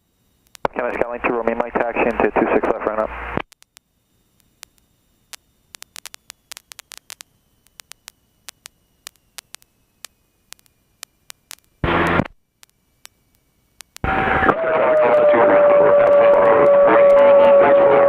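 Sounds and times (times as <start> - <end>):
radio static clicks: 0.3 - 15.0
radio hiss burst: 0.4 - 3.5, 4.5 - 14.5.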